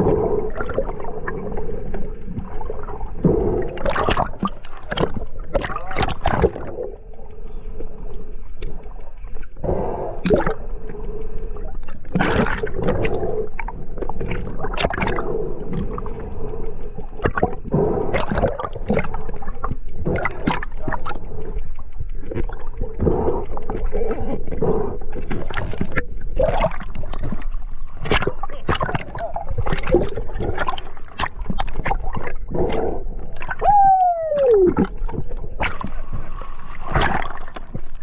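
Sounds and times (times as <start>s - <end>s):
water gurgling and rushing: 0.0s - 7.1s, 8.7s - 10.7s, 11.5s - 38.0s
gushes of bubbles: 2.4s - 6.9s, 10.2s - 10.6s, 12.1s - 13.0s, 13.6s - 15.3s, 20.0s - 21.2s, 25.3s - 32.7s, 33.3s - 38.0s.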